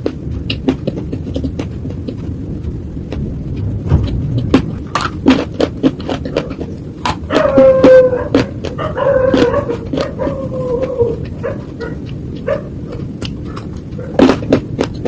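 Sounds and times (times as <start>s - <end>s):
slate crunching as chewed: 0.0s - 15.0s
low rumble: 0.2s - 14.5s.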